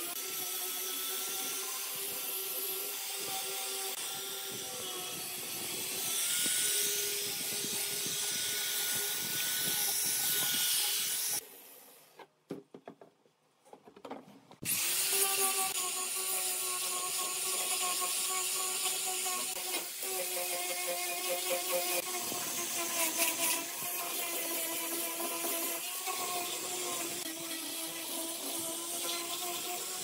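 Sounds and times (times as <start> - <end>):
angle grinder sanding wood: 0.0 - 11.8, 14.6 - 30.0
wooden knocks: 12.5 - 14.6.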